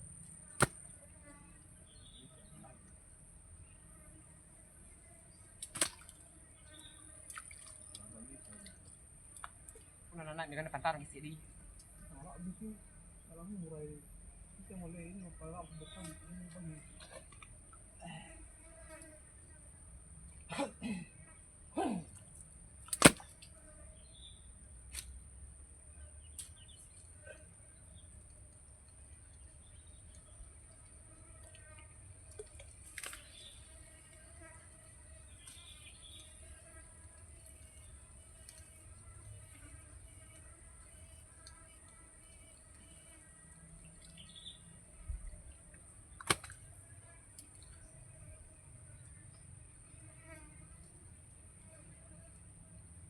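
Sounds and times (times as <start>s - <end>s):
sharp knock: 23.0s - 23.2s.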